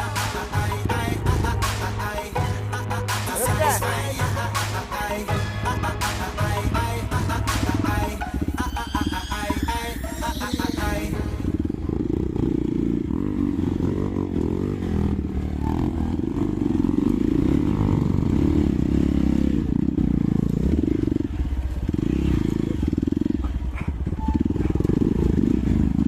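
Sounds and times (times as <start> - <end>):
motorcycle engine revving: 0.0 - 9.7, 10.4 - 26.0
background music: 0.0 - 13.3.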